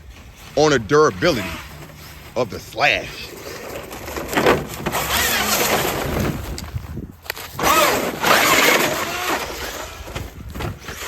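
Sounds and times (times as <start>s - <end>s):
tyre and terrain noise: 0.0s - 11.0s
radio-controlled truck motor whining: 4.9s - 6.1s, 7.6s - 10.2s.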